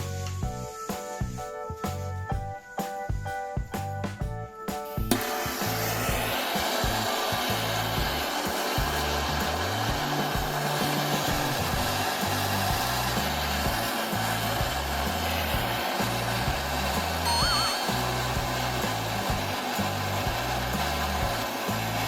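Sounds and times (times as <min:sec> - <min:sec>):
background music with bass line: 0:00.0 - 0:22.0
gas torch flame hissing: 0:05.0 - 0:22.0.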